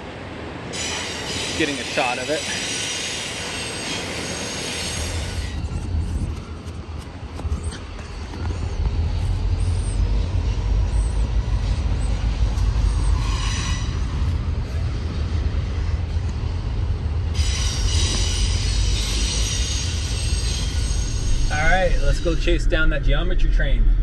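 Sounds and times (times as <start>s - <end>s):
train rumbling past: 0.0s - 24.0s
high-pitched wheel squeal: 2.5s - 6.6s, 7.4s - 14.4s, 17.3s - 22.6s.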